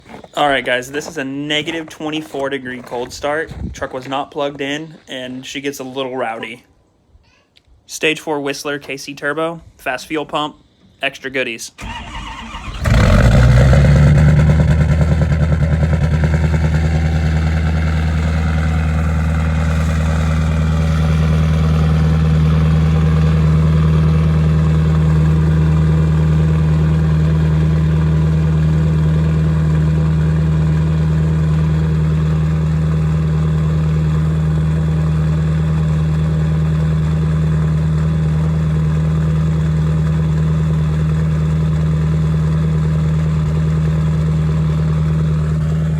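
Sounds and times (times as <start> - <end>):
diesel engine cold starting: 11.8 - 45.9.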